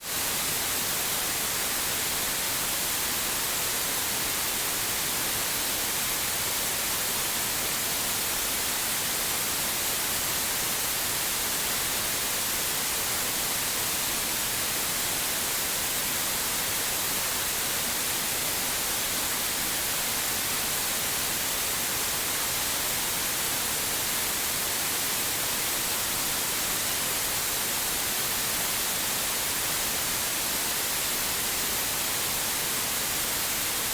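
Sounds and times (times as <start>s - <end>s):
white noise hiss: 0.0s - 33.9s.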